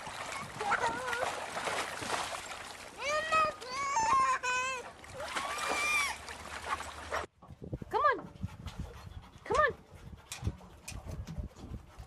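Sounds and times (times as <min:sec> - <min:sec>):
water splashing: 0:00.0 - 0:07.3
toddler's high voice: 0:00.4 - 0:01.3, 0:03.0 - 0:04.9.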